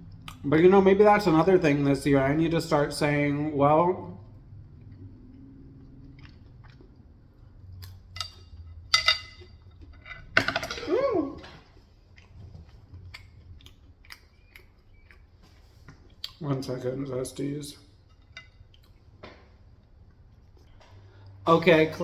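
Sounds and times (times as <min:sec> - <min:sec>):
person chewing: 0:04.2 - 0:10.4, 0:11.0 - 0:16.4, 0:18.1 - 0:19.2
chopsticks clicking on dishes: 0:07.8 - 0:10.8.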